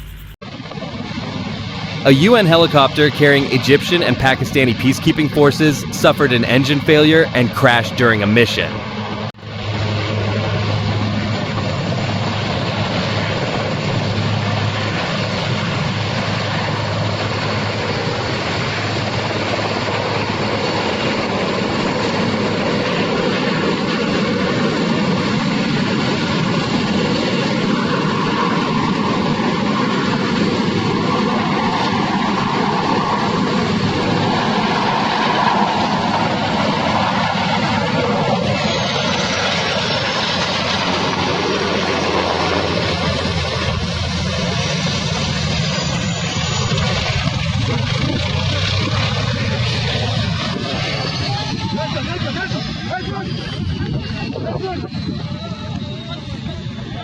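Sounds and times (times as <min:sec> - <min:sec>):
high whine falling: 0:00.0 - 0:00.4
helicopter engine and rotor: 0:00.0 - 0:57.0.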